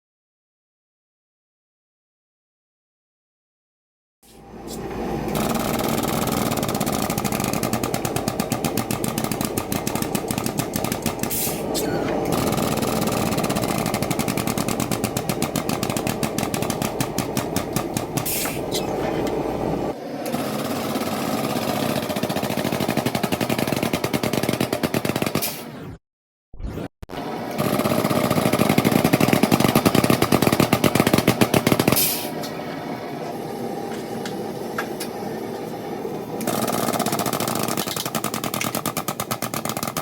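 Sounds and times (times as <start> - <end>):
power hammer pounding metal: 5.3 - 19.6, 20.4 - 25.7, 27.5 - 32.3.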